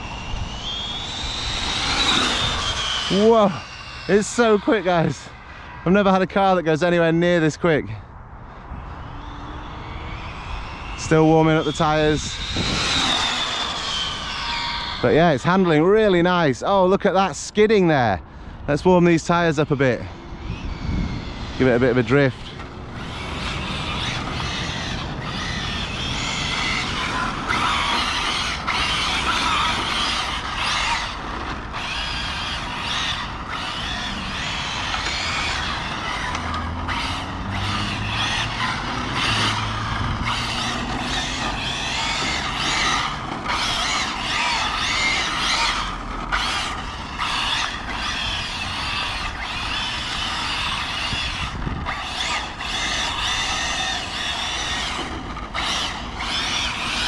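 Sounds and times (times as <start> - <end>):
rc car motor whining: 0.0 - 7.6, 8.6 - 16.3, 19.0 - 57.0
tyres squealing and skidding: 0.0 - 8.0, 8.6 - 18.1, 18.7 - 57.0.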